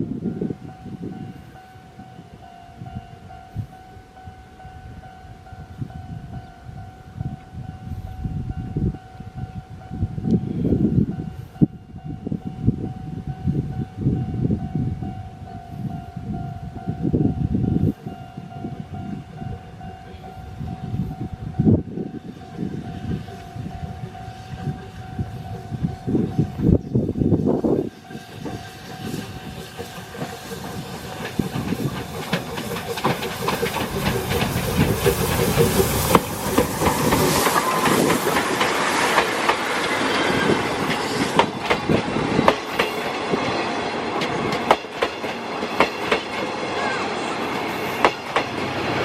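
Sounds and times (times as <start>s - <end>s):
level-crossing warning bell: 0.0s - 36.6s
rumble of train cars: 0.0s - 49.0s
steam locomotive chuffing: 19.5s - 49.0s
wheels clattering over rail joints: 27.9s - 49.0s.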